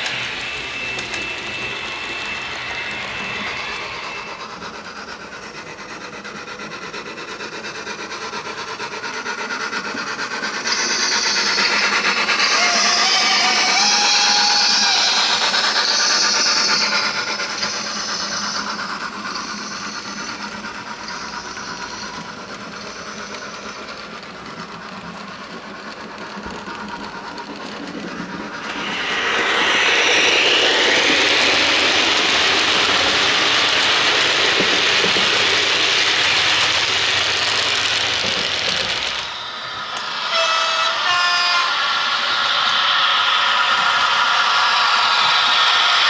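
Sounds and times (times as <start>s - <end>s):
model train running on track: 0.0s - 46.0s.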